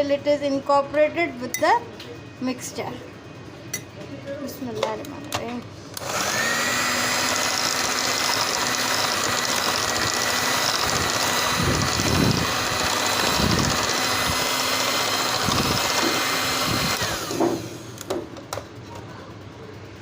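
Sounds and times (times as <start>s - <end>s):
electric mixer whining: 6.0s - 18.1s.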